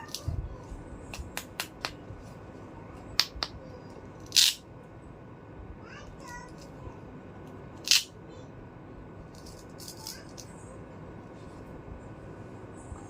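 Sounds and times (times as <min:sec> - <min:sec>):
plastic toy pieces clicking: 0:04.2 - 0:04.6, 0:07.8 - 0:08.1, 0:09.4 - 0:10.5.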